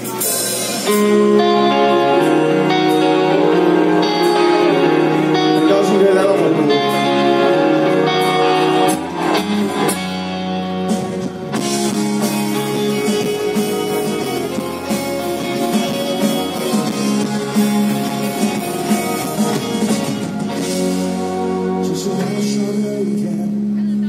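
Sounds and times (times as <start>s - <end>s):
live rock band playing: 0.0s - 24.0s
low bass line: 0.9s - 24.0s
person singing: 2.9s - 7.6s, 21.4s - 24.0s.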